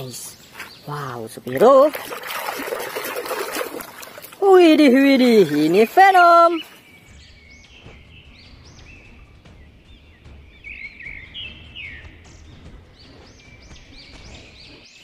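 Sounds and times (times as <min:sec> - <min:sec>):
small birds chirping: 0:00.0 - 0:15.0
low rumble: 0:07.0 - 0:14.9.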